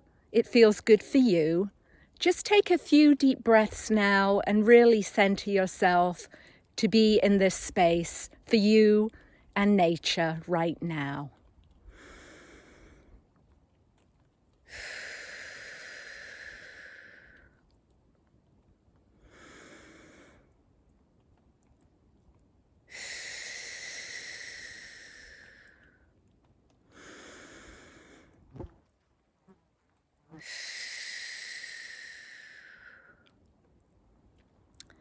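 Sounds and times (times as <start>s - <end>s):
woman breathing deeply: 11.9s - 13.1s, 14.7s - 17.5s, 22.9s - 25.9s, 30.4s - 33.2s.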